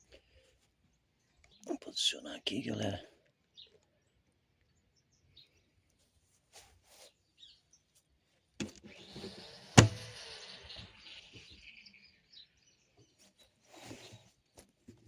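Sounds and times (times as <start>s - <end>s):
rustling and scraping: 6.0s - 7.3s, 13.1s - 15.0s
faint bird chirps: 6.8s - 14.6s
knocks: 9.8s - 10.1s.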